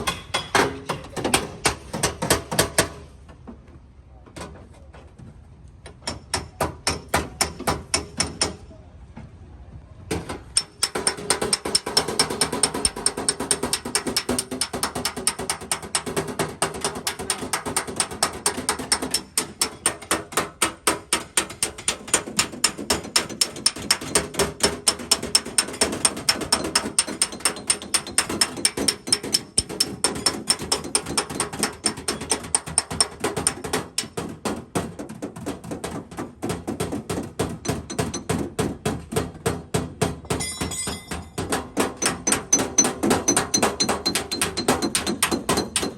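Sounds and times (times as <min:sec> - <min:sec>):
metal tool tapping car panel: 0:05.9 - 0:08.6, 0:10.5 - 0:35.8, 0:36.4 - 0:45.9.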